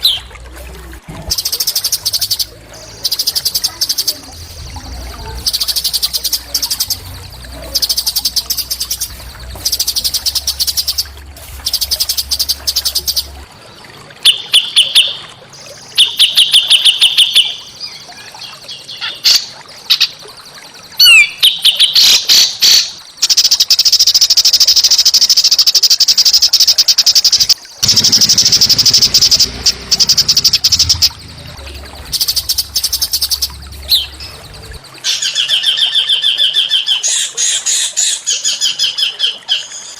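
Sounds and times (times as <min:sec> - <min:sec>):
low steady hum: 0:00.0 - 0:14.3, 0:27.8 - 0:35.2
songbirds singing rattling trills: 0:01.3 - 0:39.9.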